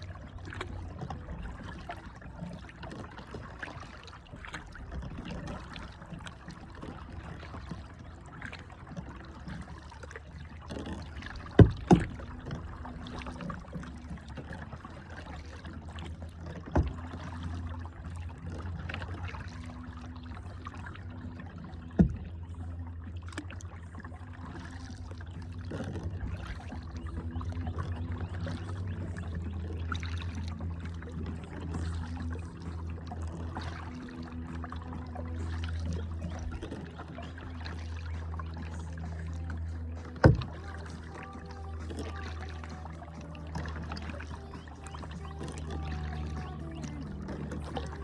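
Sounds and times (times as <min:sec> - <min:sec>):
low hum: 0:00.0 - 0:48.0
water splashing off paddle: 0:00.0 - 0:48.0
sharp knocks on boat: 0:10.7 - 0:14.3, 0:15.6 - 0:19.8, 0:21.9 - 0:22.4, 0:40.0 - 0:43.0.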